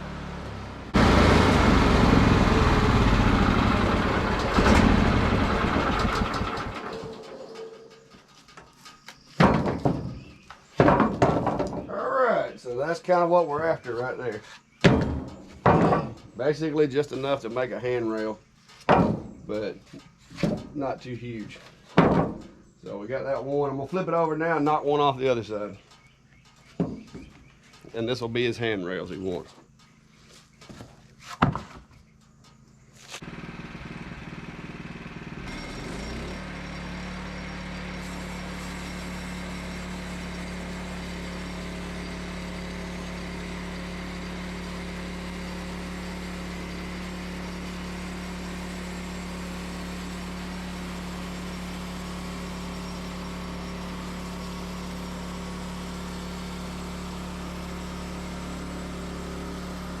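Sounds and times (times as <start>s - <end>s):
small gasoline engine running: 0.0s - 7.4s, 33.2s - 60.0s.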